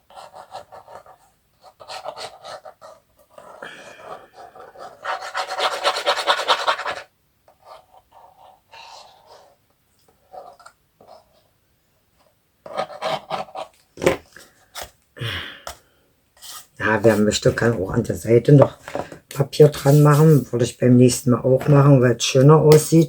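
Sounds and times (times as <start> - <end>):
scraping and rubbing on paper: 0.0 - 11.5, 12.2 - 15.0, 16.4 - 17.8, 19.6 - 20.7.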